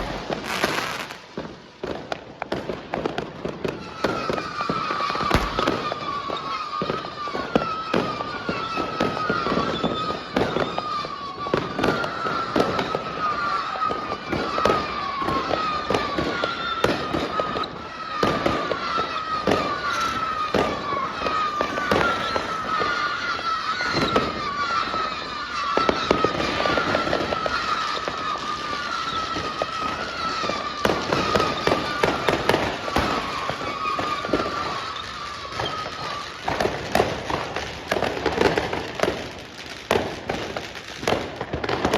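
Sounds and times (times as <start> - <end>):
fireworks bangs and crackles: 0.0 - 41.9
wavering whistle: 19.4 - 24.2.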